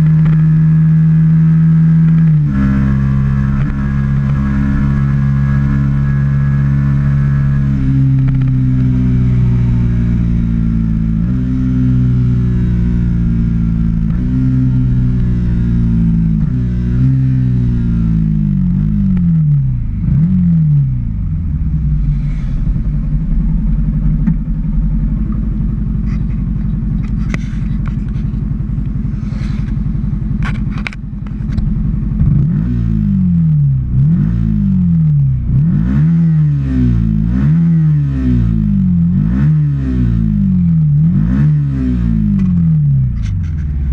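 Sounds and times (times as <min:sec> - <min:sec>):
motorcycle throttle revs: 0:00.0 - 0:43.9
motorcycle engine idling: 0:20.9 - 0:32.3.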